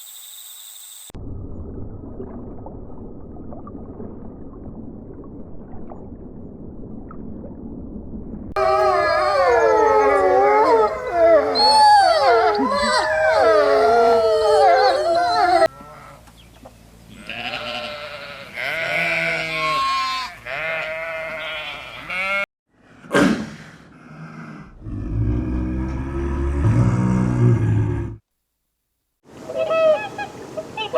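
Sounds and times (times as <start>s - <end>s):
gliding animal calls: 8.6s - 15.7s
low rumbling animal call: 8.6s - 16.1s, 24.2s - 28.2s.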